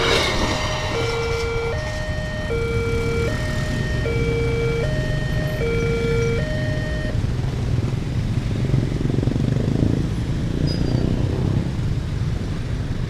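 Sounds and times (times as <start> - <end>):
level-crossing siren two notes: 0.0 - 7.2
vehicle engines rumbling: 0.0 - 13.0.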